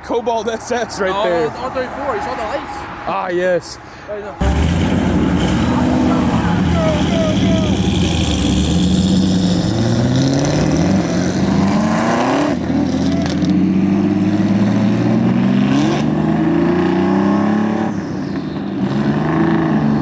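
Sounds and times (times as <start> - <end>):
car engine accelerating: 4.4 - 20.0.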